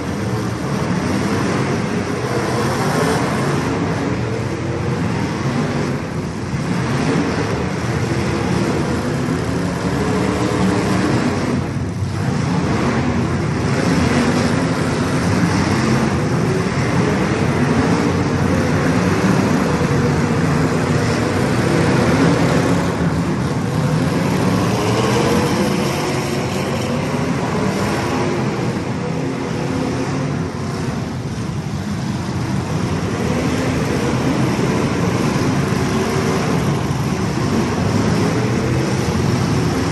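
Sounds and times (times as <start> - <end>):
race car engines racing: 0.0 - 39.9.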